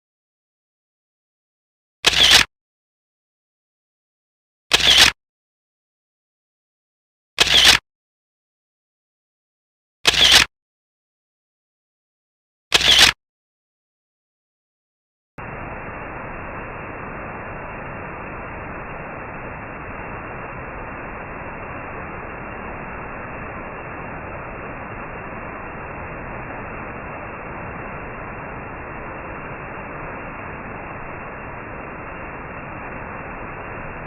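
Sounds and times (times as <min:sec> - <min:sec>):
steady white noise hiss: 0:15.4 - 0:34.0.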